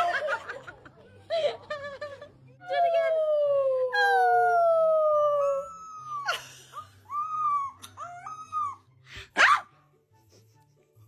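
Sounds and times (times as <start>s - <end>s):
puppy howling: 3.4s - 6.4s.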